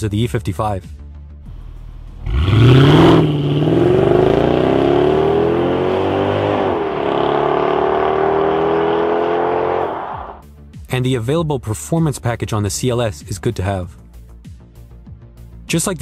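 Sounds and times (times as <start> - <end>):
car engine revving: 2.0 - 10.4.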